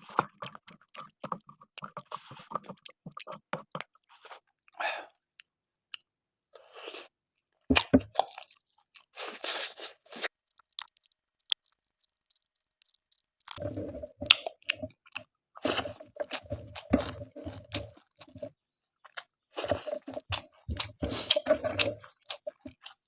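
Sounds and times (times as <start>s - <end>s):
wet mouth sounds: 0.0s - 4.4s, 7.8s - 18.4s
chewing and crunching food: 0.0s - 6.1s, 6.9s - 23.0s.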